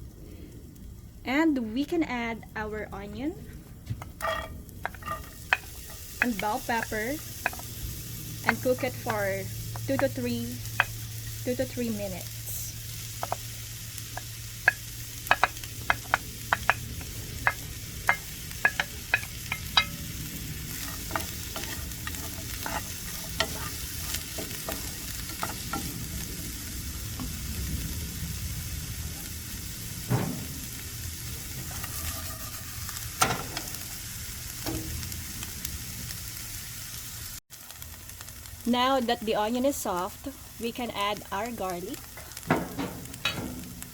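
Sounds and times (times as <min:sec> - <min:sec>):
vegetables sizzling in a frying pan: 0:04.1 - 0:43.9
utensil clicking against pan: 0:14.1 - 0:26.0.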